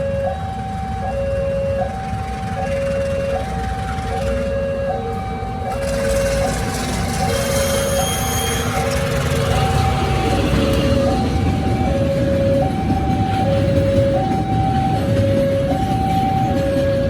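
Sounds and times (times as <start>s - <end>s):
two-tone crossing alarm: 0.0s - 17.0s.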